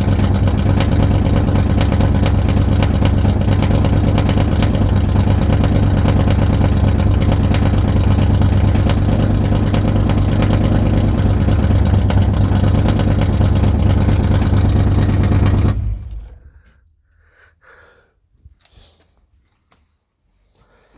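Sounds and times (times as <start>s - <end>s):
car engine running: 0.0s - 16.6s.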